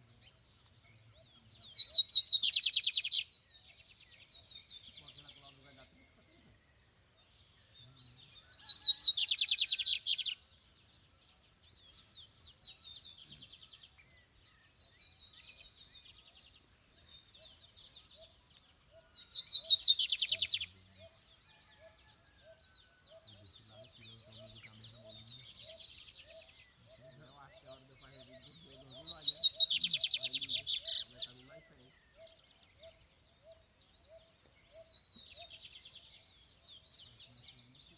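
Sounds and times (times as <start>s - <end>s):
fainter bird chirps: 18.1s - 21.6s.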